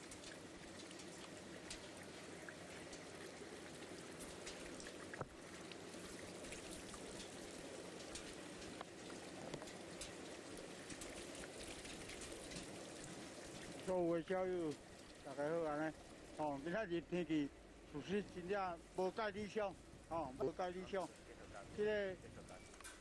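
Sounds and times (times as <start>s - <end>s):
steady water hiss: 0.0s - 23.0s.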